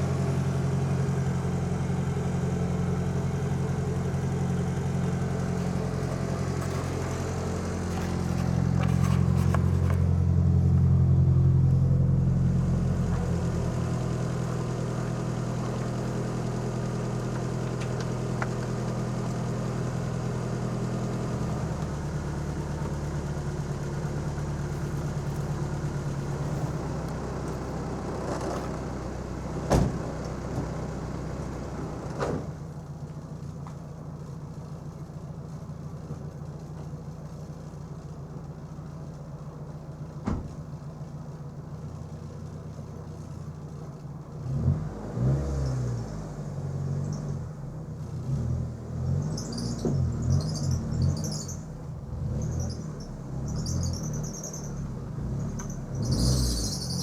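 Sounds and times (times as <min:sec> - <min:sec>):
car engine idling: 0:00.0 - 0:44.6.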